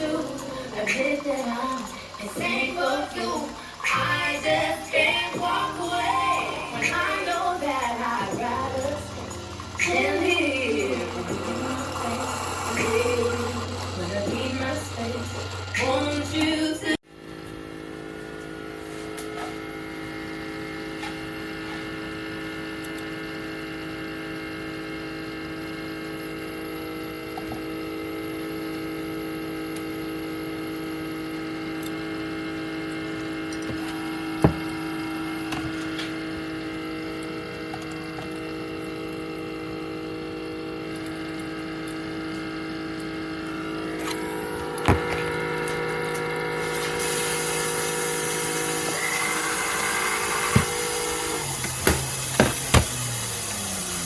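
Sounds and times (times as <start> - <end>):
coffee maker electric hum: 0.0 - 54.0.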